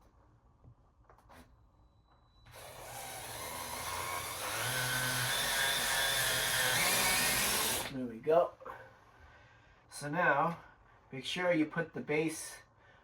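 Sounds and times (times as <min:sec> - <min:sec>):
cordless screwdriver driving screw: 0:02.5 - 0:07.9.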